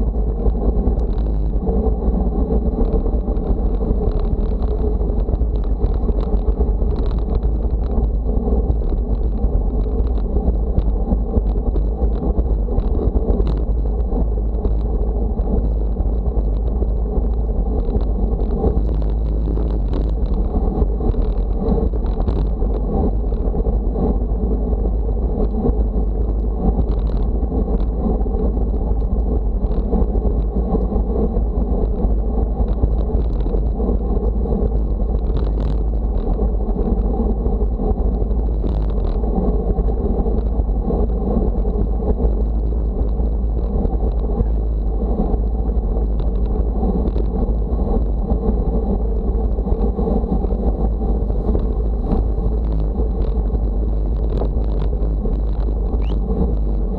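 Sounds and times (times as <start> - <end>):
rumbling movement noise: 0.0 - 56.9
wind buffeting microphone: 0.0 - 56.9
faint high whine: 55.9 - 56.4.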